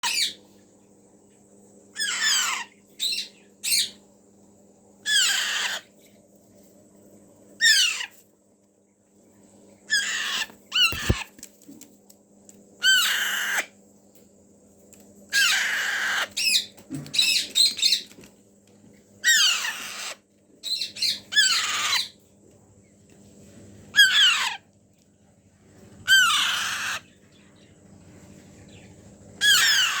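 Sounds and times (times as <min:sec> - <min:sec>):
parakeet chicks rasping calls: 0:00.0 - 0:00.4, 0:01.9 - 0:04.0, 0:05.0 - 0:06.0, 0:07.6 - 0:08.2, 0:09.9 - 0:11.3, 0:12.8 - 0:13.8, 0:15.3 - 0:18.2, 0:19.2 - 0:22.2, 0:23.9 - 0:24.7, 0:25.8 - 0:30.0.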